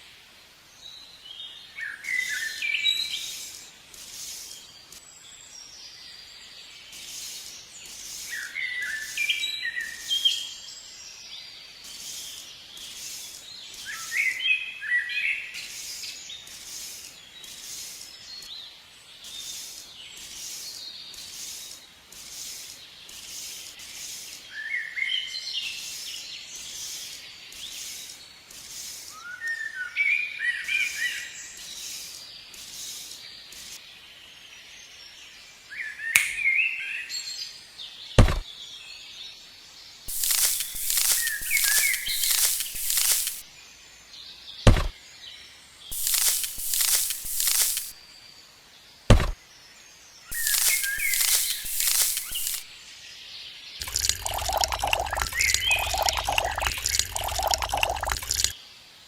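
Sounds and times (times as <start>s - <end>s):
regular high-pitched bird chirp: 40.1s - 43.4s, 45.9s - 48.3s, 50.2s - 58.6s.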